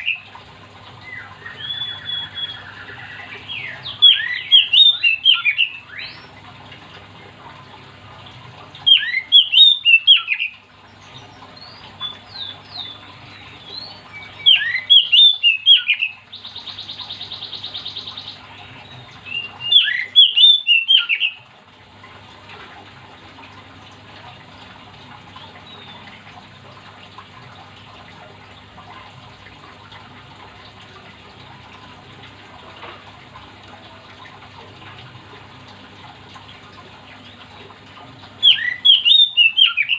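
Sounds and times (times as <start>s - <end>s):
bird singing whistled phrases: 1.0s - 6.3s, 8.9s - 10.6s, 12.0s - 18.4s, 19.2s - 21.4s, 38.4s - 39.9s.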